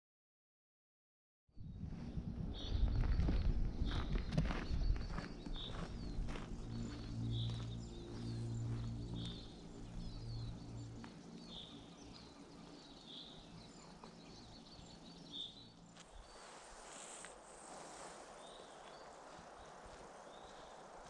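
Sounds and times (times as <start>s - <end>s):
low steady hum: 1.6s - 16.2s
high bird chirps: 2.7s - 10.7s.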